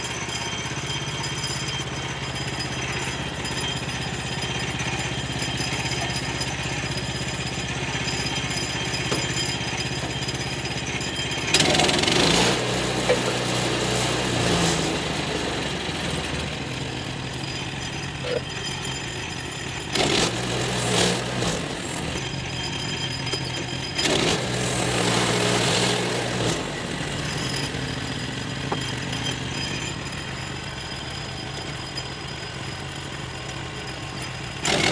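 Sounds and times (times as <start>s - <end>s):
sawmill engine running: 0.0s - 34.9s
saw cutting into wood: 11.4s - 31.0s, 34.6s - 34.9s.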